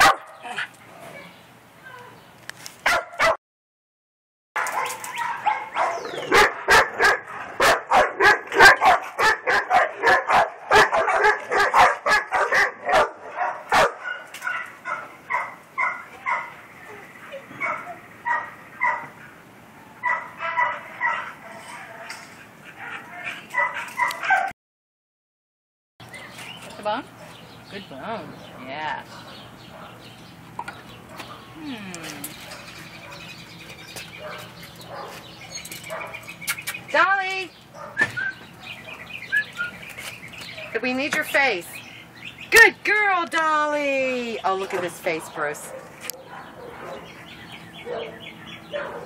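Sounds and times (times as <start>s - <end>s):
dog barking: 0.0s - 0.6s, 2.8s - 3.4s, 4.6s - 16.6s, 17.6s - 19.2s, 20.0s - 22.2s, 22.8s - 24.5s, 29.1s - 30.0s, 34.2s - 35.3s, 35.9s - 36.2s, 37.8s - 38.1s, 45.6s - 47.2s, 47.8s - 49.0s.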